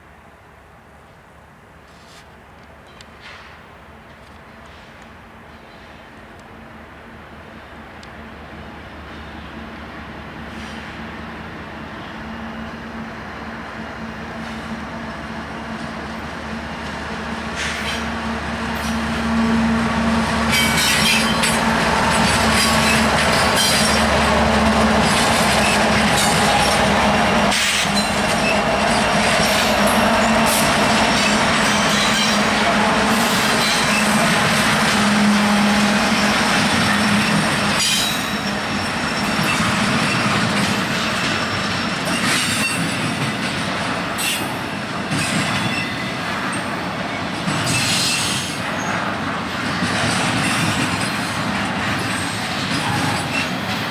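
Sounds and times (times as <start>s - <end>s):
railcars rumbling: 0.0s - 53.9s
train wheels squealing: 20.4s - 24.3s, 25.0s - 49.2s, 50.2s - 53.9s.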